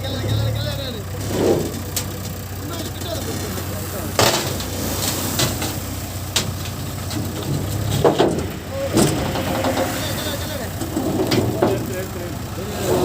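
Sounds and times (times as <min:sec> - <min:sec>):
diesel engine running: 0:00.0 - 0:13.0
sharp knocks: 0:05.4 - 0:10.0.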